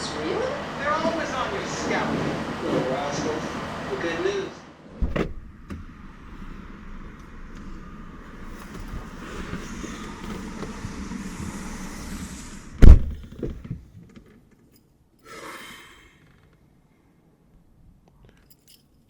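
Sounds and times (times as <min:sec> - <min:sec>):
rumbling background noise: 0:00.0 - 0:14.0
loud thump: 0:04.9 - 0:05.9, 0:12.8 - 0:13.6.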